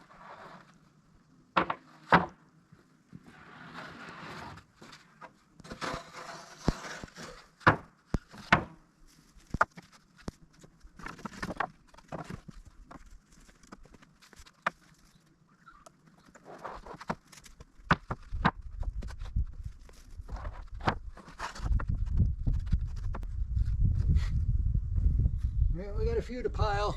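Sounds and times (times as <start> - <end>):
boards scraping: 0.0 - 0.8, 3.1 - 8.8, 16.2 - 23.2
wooden boards knocking: 1.6 - 2.3.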